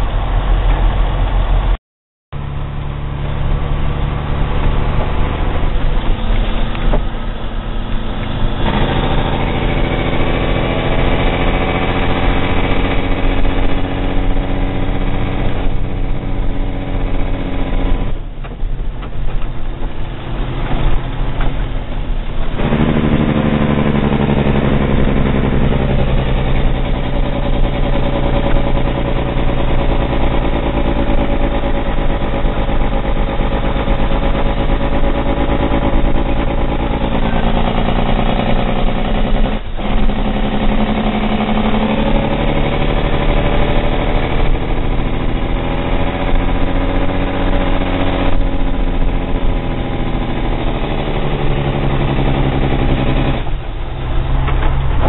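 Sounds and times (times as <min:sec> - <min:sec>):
truck diesel engine pulling: 0:00.0 - 0:01.8, 0:02.4 - 0:55.0.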